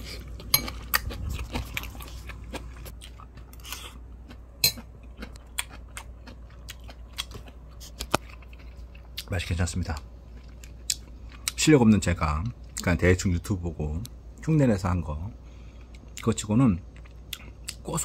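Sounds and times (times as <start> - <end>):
person chewing food: 0.0 - 11.6, 16.8 - 17.8.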